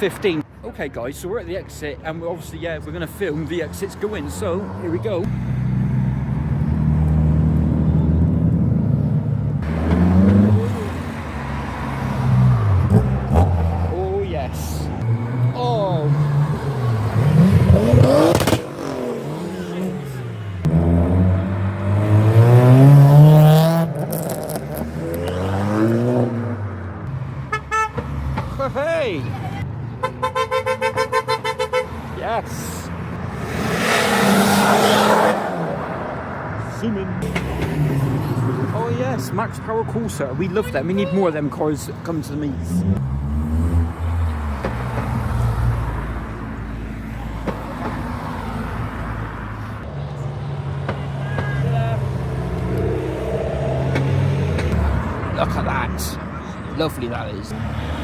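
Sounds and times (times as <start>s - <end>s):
car engine accelerating hard: 14.9s - 26.8s.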